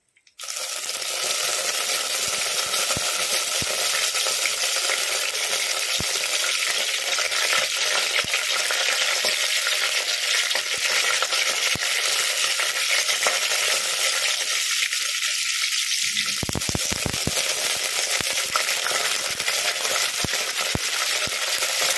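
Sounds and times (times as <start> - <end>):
sharp pops and crackles: 0.0 - 9.6, 16.1 - 21.9
hot oil sizzling in a pan: 0.3 - 21.9.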